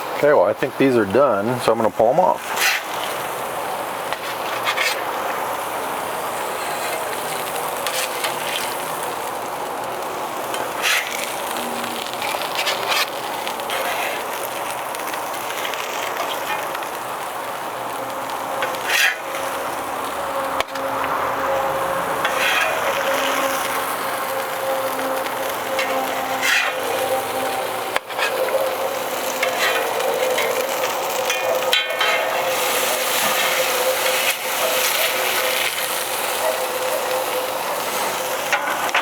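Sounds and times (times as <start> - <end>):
burgers sizzling on a griddle: 0.0 - 39.0
metal spatula scraping: 2.4 - 3.2, 4.1 - 5.1, 6.6 - 9.0, 10.5 - 16.9, 18.6 - 20.9, 22.1 - 36.4.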